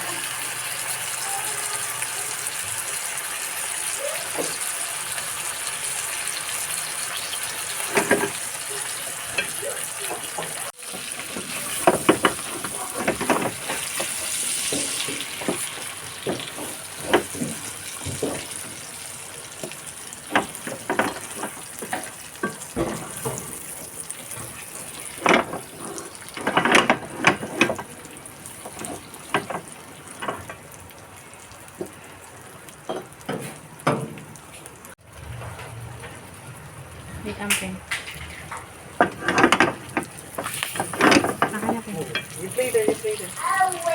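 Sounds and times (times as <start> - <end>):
food sizzling in hot oil: 0.0 - 35.1, 36.2 - 43.9
utensils clicking on pan: 5.4 - 30.8, 37.3 - 43.4.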